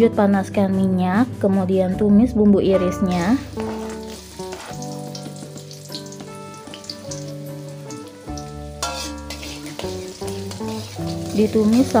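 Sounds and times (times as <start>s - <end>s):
background music with held notes: 0.0s - 12.0s
shallots sizzling in hot oil: 2.9s - 12.0s.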